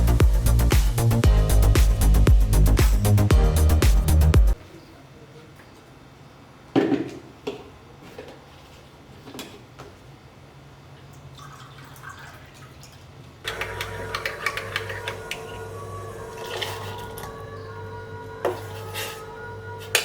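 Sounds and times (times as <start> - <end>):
music: 0.0 - 4.6, 13.8 - 20.0.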